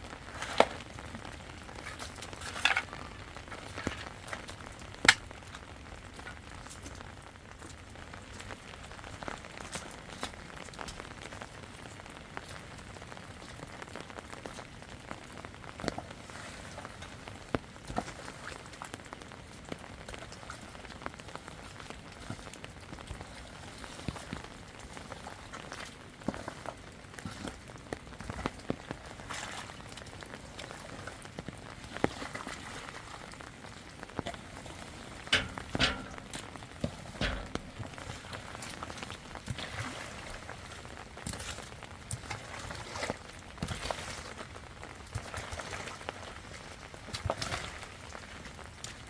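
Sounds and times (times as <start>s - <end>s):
rain falling: 0.0s - 49.0s
raindrops ticking on surfaces: 0.0s - 49.0s
loud knocks: 37.2s - 37.9s.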